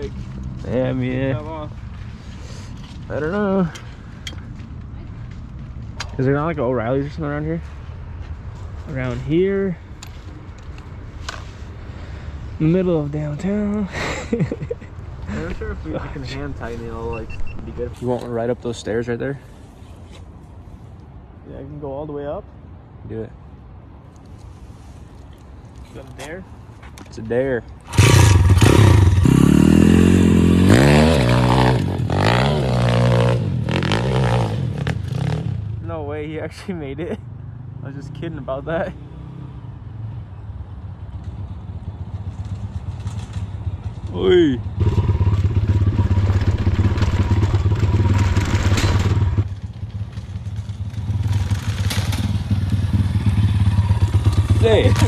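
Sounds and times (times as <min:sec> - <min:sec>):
pit bike engine revving: 0:27.9 - 0:35.8, 0:44.7 - 0:55.0.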